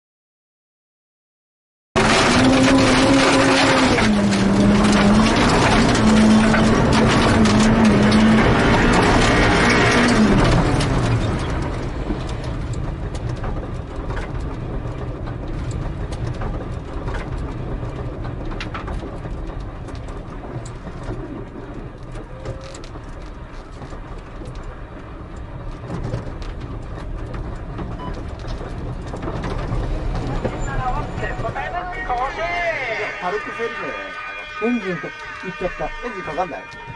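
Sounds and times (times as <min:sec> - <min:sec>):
sharp clicks and knocks: 0:02.0 - 0:30.6
car rolling with low rumble: 0:02.0 - 0:33.0.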